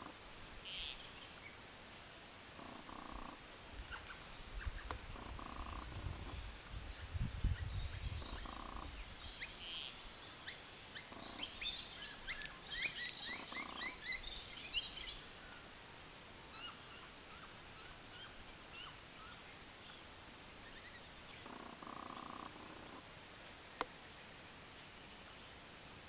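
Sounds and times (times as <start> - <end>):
birds chirping and calling: 7.4 - 15.6.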